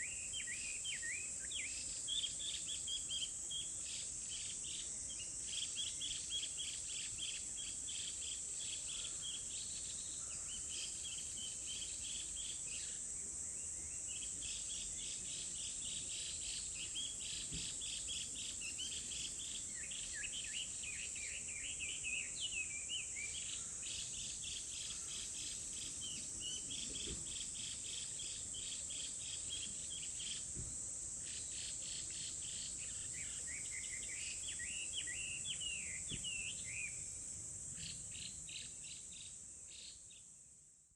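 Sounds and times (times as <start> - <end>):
birds singing: 32.2 - 37.0.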